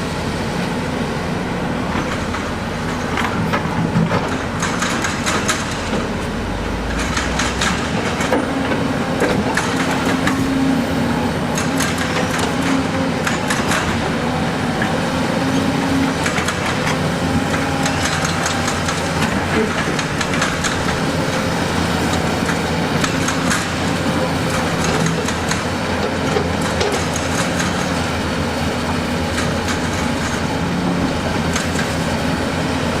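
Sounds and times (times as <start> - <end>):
diesel engine humming: 0.0 - 33.0
clanks of rock and steel: 1.9 - 6.2, 6.8 - 10.6, 11.5 - 14.2, 16.0 - 28.2, 28.8 - 32.1.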